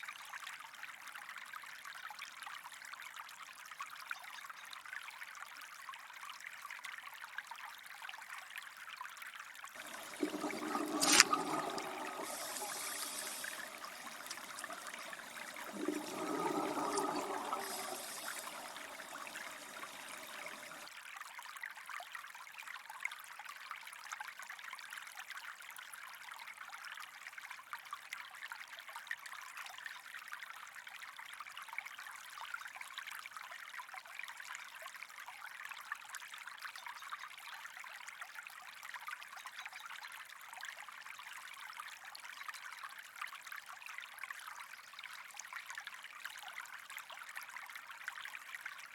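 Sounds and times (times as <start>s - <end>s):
water trickling: 9.8s - 20.9s.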